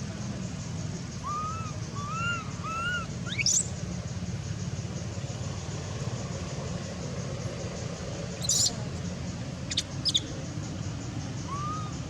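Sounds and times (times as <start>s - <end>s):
baby monkey squeaking: 1.3s - 3.7s, 8.4s - 8.7s, 9.7s - 10.2s
monkey squeal: 8.4s - 8.7s.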